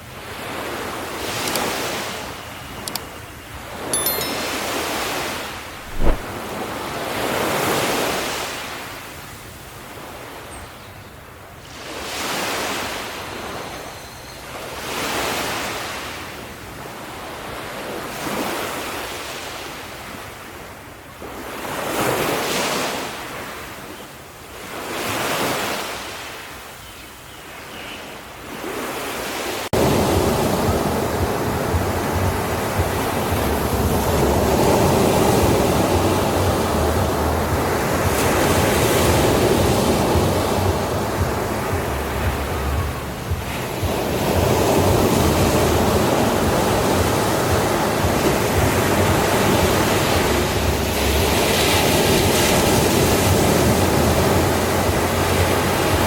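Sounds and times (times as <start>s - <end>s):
ocean waves breaking: 3.7s - 9.0s, 28.5s - 56.0s
short sharp knock: 5.8s - 6.3s.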